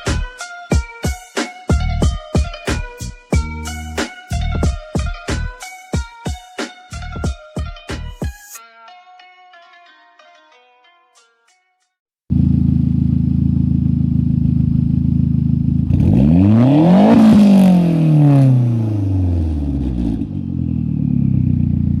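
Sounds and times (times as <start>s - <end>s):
car exhaust idling and revving: 12.3s - 22.0s.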